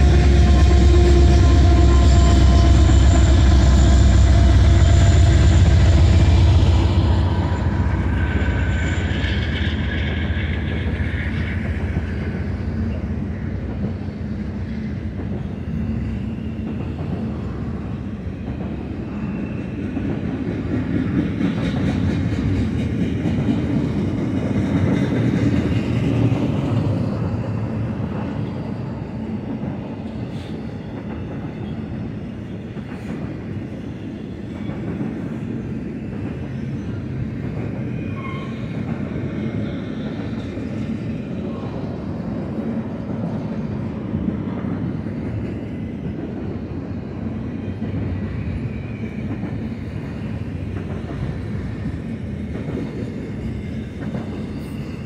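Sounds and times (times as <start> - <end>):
locomotive engine rumble: 0.0 - 15.6.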